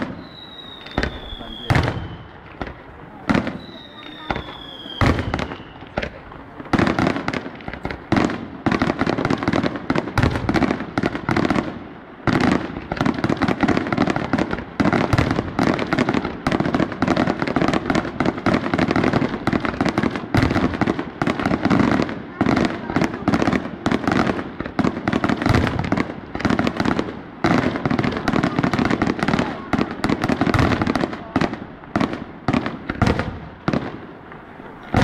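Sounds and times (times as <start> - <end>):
fireworks bangs and crackling: 0.0 - 35.0.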